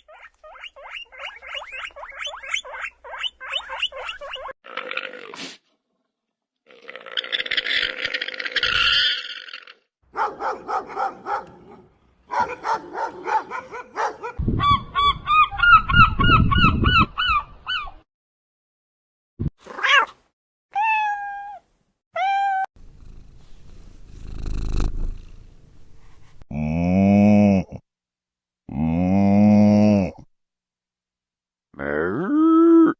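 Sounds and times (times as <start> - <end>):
cat meowing: 20.7 - 21.6, 22.2 - 22.7.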